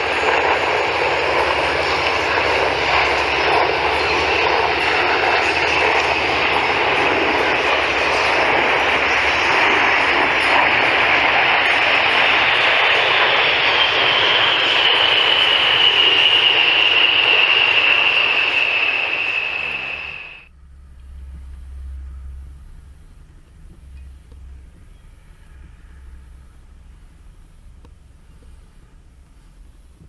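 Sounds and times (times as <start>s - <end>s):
jet engines roaring with falling whine: 0.0s - 30.0s
faint low rumble: 20.5s - 30.0s.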